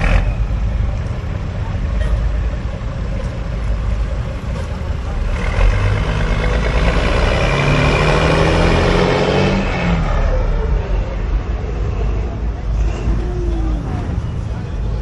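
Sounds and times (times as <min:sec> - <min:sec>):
car engine accelerating: 0:02.5 - 0:14.1.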